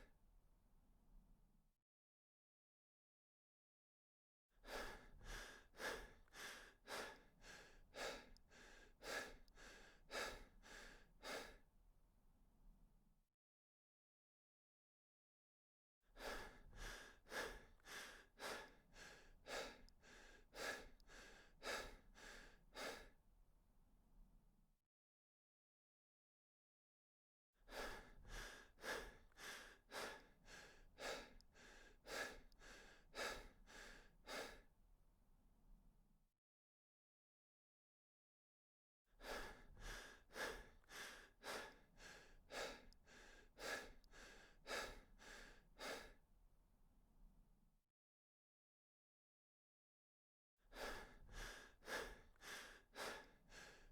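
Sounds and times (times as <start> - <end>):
person breathing rhythmically: 4.6 - 11.7, 16.2 - 23.2, 27.7 - 34.7, 39.2 - 46.2, 50.7 - 53.9.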